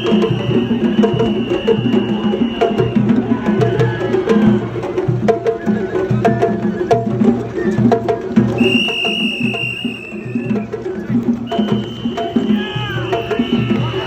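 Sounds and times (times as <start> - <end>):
high flute note: 0.0 - 3.0, 11.5 - 14.0
taiko drums beating: 0.0 - 14.0.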